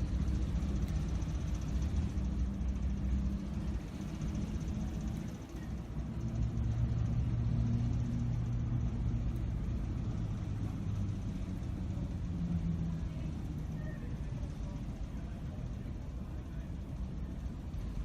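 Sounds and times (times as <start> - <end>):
engine rumble with hum: 0.0 - 18.0.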